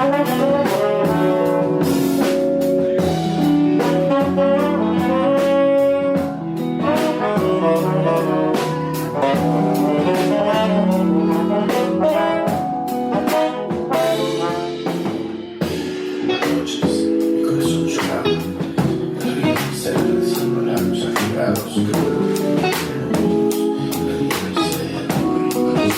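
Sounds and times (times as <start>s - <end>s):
drum kit with cymbals: 0.0s - 25.9s
electric bass: 0.0s - 25.9s
piano: 0.0s - 25.9s
tenor saxophone: 0.0s - 25.9s
trombone: 0.0s - 25.9s.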